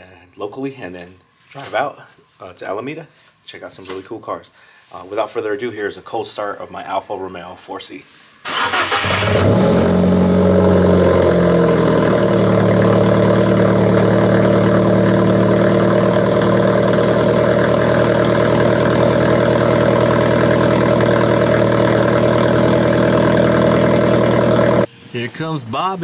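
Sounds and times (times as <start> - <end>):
car engine fast idling: 8.5 - 24.9.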